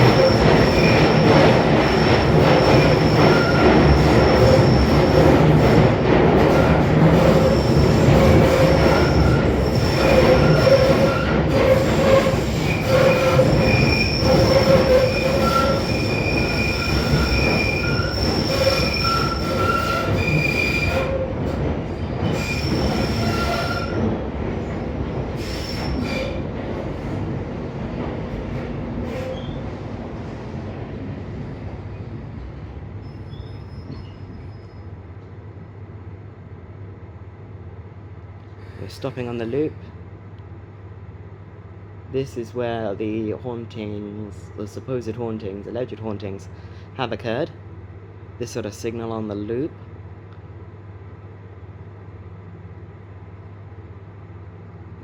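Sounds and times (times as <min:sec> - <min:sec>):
train wheels squealing: 0:00.0 - 0:05.8, 0:06.5 - 0:24.1, 0:25.4 - 0:26.4, 0:29.0 - 0:29.6, 0:33.0 - 0:35.0
train running rumble: 0:00.0 - 0:34.5.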